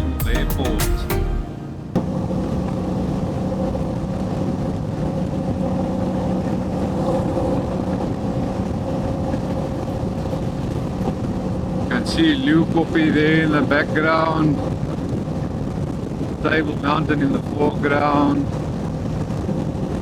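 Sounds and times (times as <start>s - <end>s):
motorcycle engine drone: 1.5s - 13.4s
wind noise on microphone: 2.0s - 20.0s.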